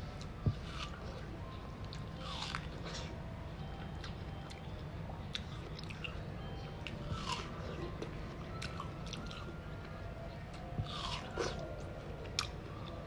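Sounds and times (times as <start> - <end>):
steady low hum: 0.0 - 13.0
person chewing with wet smacks: 1.8 - 3.1, 5.3 - 6.2, 6.8 - 9.5.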